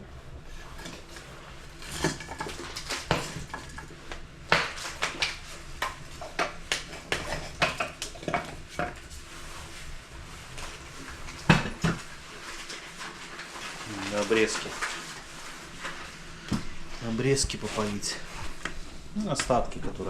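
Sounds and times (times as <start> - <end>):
pots and utensils clattering: 0.5 - 9.6, 10.6 - 16.6.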